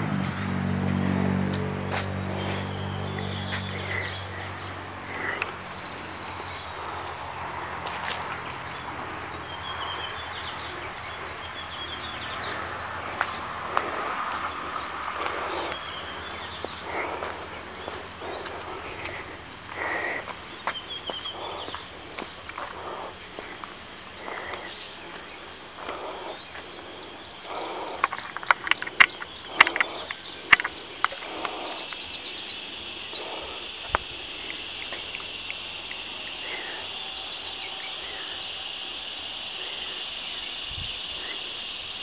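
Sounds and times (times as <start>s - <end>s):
passing vehicle hum: 0.0s - 24.4s
insects droning: 0.0s - 42.0s
rustles: 0.1s - 37.5s
faint chirps: 8.1s - 33.6s.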